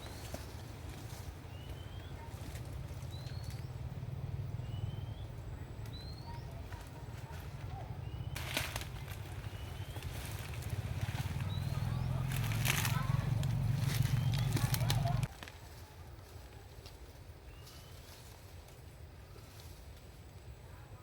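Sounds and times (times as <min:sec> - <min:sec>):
steady low rumble: 0:00.0 - 0:15.3
bird chirping: 0:01.4 - 0:08.4, 0:09.1 - 0:15.3
rustling crackling burst: 0:08.4 - 0:15.5.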